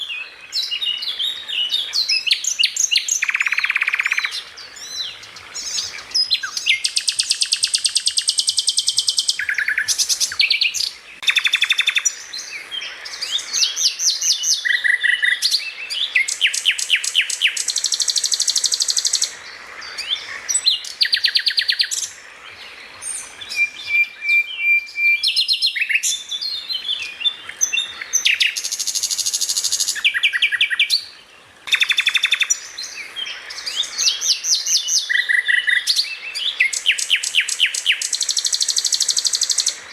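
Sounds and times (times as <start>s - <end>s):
songbird trilling and chirping: 0.0s - 39.9s.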